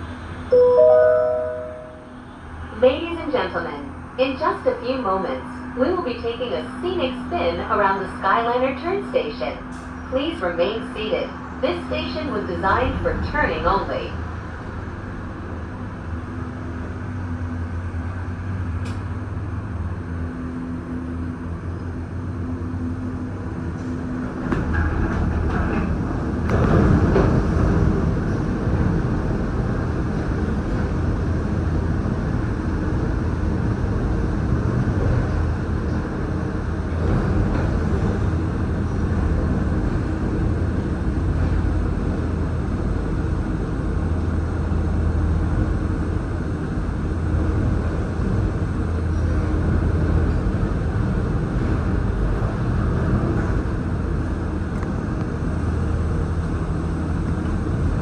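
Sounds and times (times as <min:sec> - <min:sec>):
gondola cabin rumbling on cable: 0:23.0 - 0:58.0.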